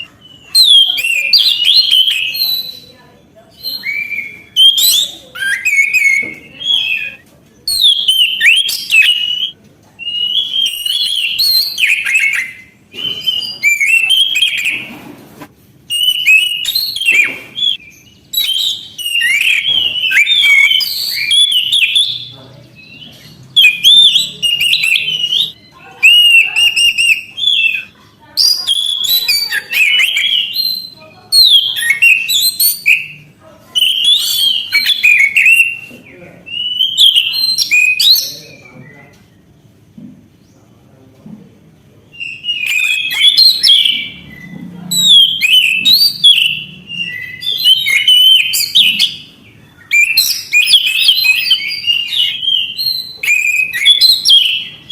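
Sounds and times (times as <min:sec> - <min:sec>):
thrush singing whistled phrases: 0:00.0 - 0:15.0, 0:15.9 - 0:35.9, 0:36.5 - 0:38.6, 0:42.1 - 0:54.9.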